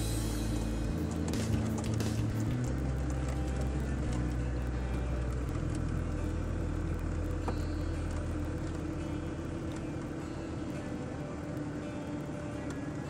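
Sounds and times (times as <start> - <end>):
car rumbling on dirt road: 0.0 - 13.0.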